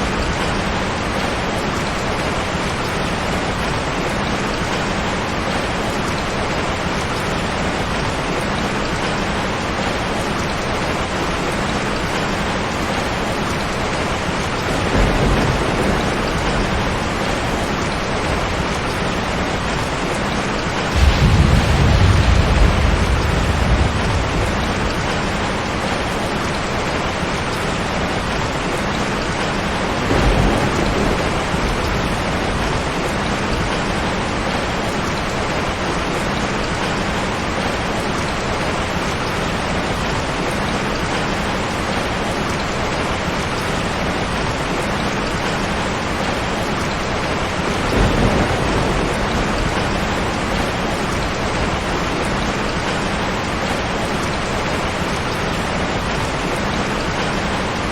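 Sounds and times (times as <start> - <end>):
heavy rain falling: 0.0 - 57.9
low thunder rumbles: 9.0 - 38.0, 45.3 - 57.9.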